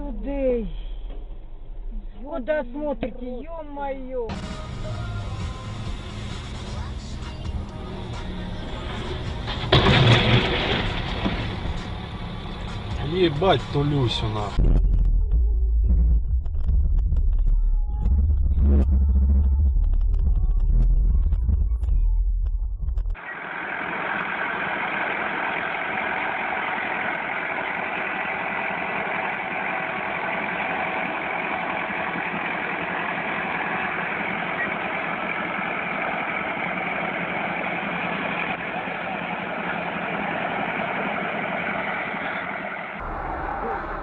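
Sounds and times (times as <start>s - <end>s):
loud low rumble: 0.0s - 23.2s, 43.0s - 44.0s
vehicle running drone: 4.3s - 44.0s.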